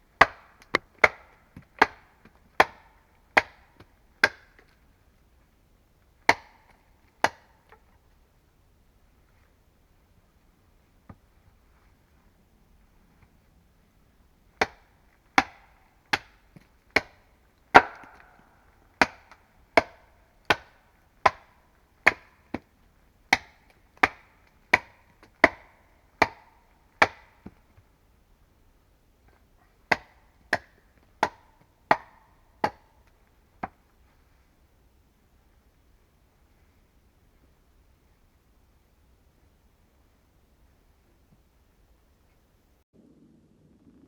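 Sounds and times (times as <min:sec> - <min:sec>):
hand tool striking wood: 0:00.2 - 0:04.8, 0:06.3 - 0:07.8, 0:14.6 - 0:22.7, 0:23.3 - 0:27.6, 0:29.9 - 0:33.8.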